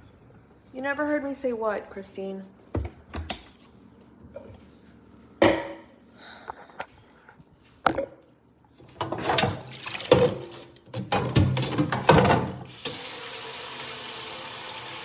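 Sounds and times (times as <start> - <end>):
clattering and rustling objects: 6.4 - 12.6.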